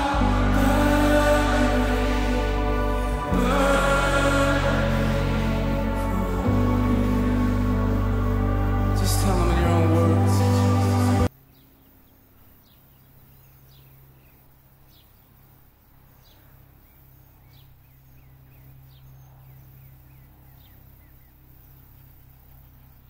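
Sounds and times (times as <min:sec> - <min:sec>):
low steady hum: 0:00.0 - 0:23.0
small birds chirping: 0:10.2 - 0:23.0.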